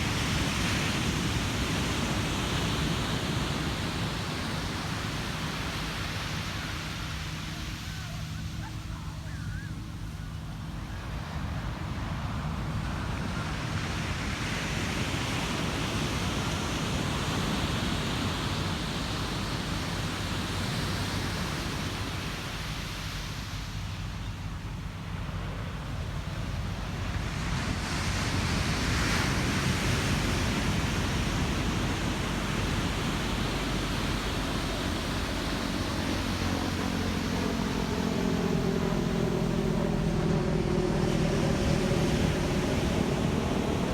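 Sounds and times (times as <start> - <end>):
low engine drone: 0.0 - 43.9
waves breaking on beach: 0.0 - 43.9.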